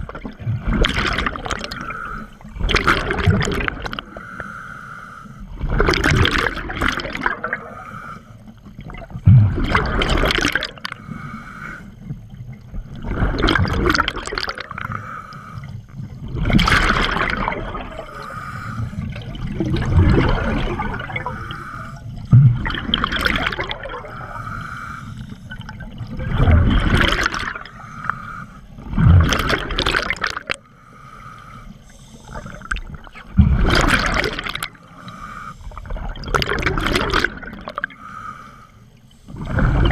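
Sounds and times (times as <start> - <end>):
gush of exhaled bubbles: 0.0 - 4.1, 5.5 - 7.8, 8.8 - 11.0, 12.7 - 14.9, 16.1 - 18.3, 19.0 - 24.4, 25.5 - 28.1, 28.8 - 30.6, 32.2 - 34.9, 35.6 - 38.0, 39.3 - 39.9
hissing regulator inhale: 4.1 - 5.5, 7.6 - 8.5, 10.9 - 12.1, 14.8 - 16.0, 18.0 - 19.1, 21.1 - 22.2, 24.0 - 25.7, 27.7 - 28.8, 30.7 - 32.7, 34.8 - 36.0, 37.9 - 39.8.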